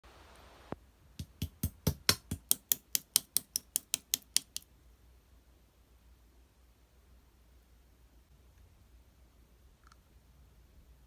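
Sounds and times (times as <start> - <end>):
sharp clicks: 2.1 - 4.6.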